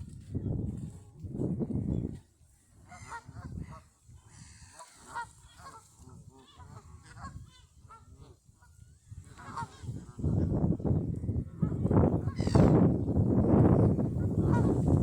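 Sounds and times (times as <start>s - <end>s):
geese honking: 2.9s - 8.1s, 9.3s - 10.2s.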